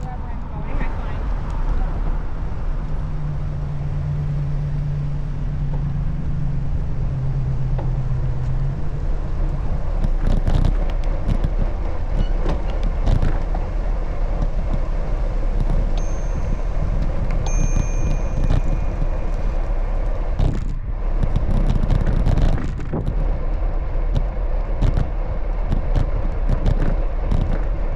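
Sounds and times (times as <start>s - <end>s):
road traffic: 0.0s - 27.9s
vehicle engine humming: 0.0s - 27.9s
wind and road rumble: 0.0s - 27.9s.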